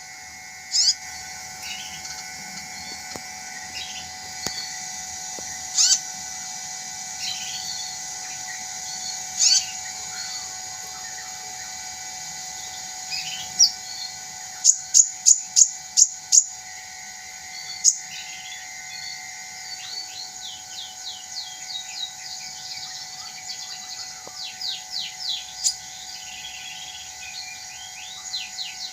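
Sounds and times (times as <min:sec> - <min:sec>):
bird calling with high chips: 0:00.0 - 0:28.9.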